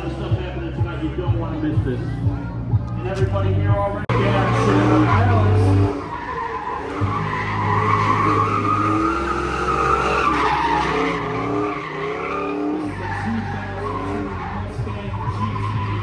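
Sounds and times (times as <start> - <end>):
car engine revving: 2.9 - 16.0
tyres squealing: 4.1 - 16.0.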